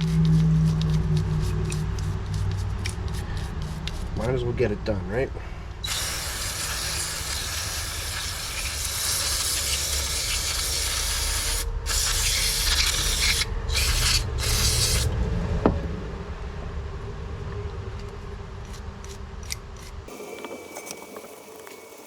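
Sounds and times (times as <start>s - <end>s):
aerosol spray hissing: 5.8s - 15.1s.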